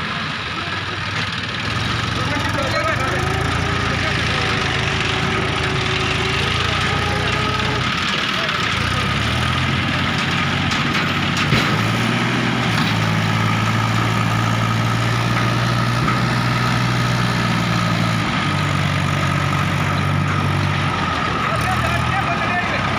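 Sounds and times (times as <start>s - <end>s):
tractor diesel engine running: 0.0s - 22.9s.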